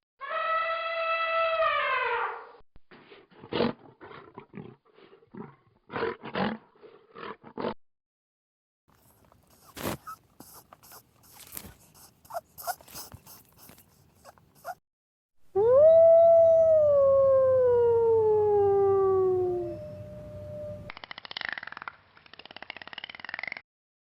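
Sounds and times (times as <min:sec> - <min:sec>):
faint clicks and rustles: 0:09.0 - 0:14.5
wolf howling: 0:15.6 - 0:20.0.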